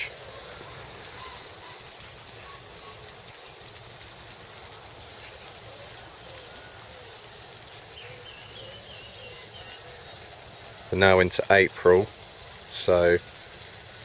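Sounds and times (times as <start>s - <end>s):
bird warbling: 0.0s - 3.5s, 7.8s - 11.1s
bird calls: 0.0s - 3.8s, 4.7s - 11.2s
steady hiss: 0.0s - 14.0s.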